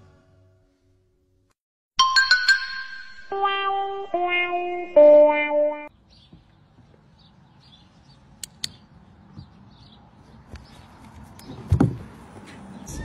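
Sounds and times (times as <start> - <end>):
faint birds chirping: 5.9 - 11.8
sharp clicks: 8.4 - 8.8.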